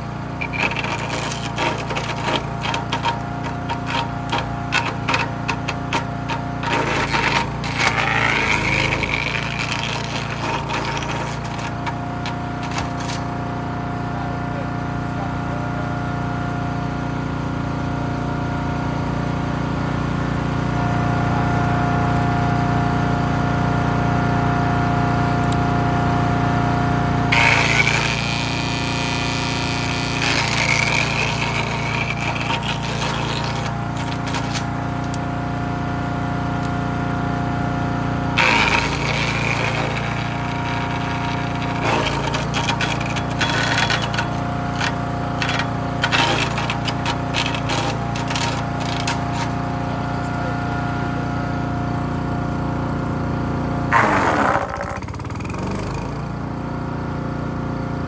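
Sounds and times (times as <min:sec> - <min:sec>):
wood cracking in chipper: 0:00.0 - 0:15.0, 0:25.0 - 0:53.0, 0:53.6 - 0:56.6
wood chipper engine running: 0:00.0 - 0:58.0.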